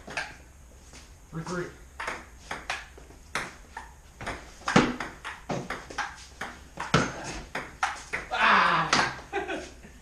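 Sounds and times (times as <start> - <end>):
ping-pong ball clicking: 2.0 - 8.0.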